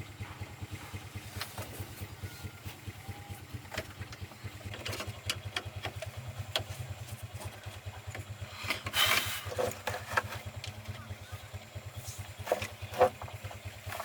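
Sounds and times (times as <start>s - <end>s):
truck engine idling: 0.0s - 14.0s
light clicks and knocks: 3.7s - 11.0s.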